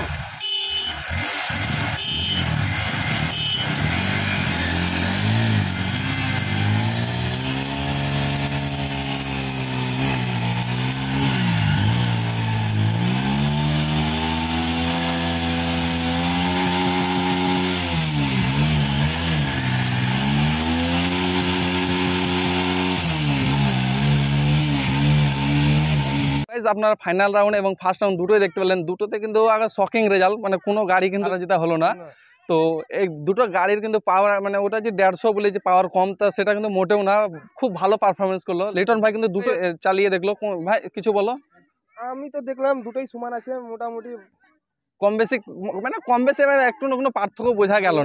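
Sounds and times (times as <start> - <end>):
motorcycle engines revving hard: 0.0 - 26.5.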